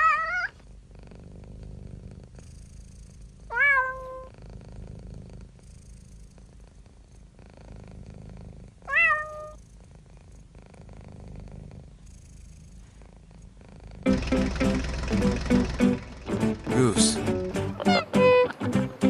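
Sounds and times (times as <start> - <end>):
cat purring: 0.0 - 19.0
cat meowing loudly: 17.8 - 18.5.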